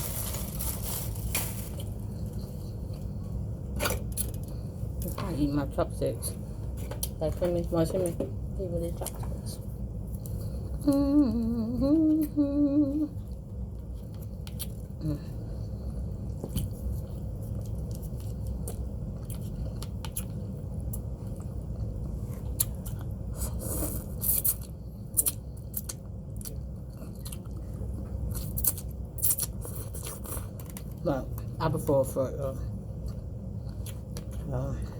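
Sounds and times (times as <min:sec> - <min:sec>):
steady low hum: 0:00.0 - 0:34.9
person humming a tune: 0:10.8 - 0:13.2
person chewing food: 0:13.2 - 0:15.0, 0:15.6 - 0:31.0.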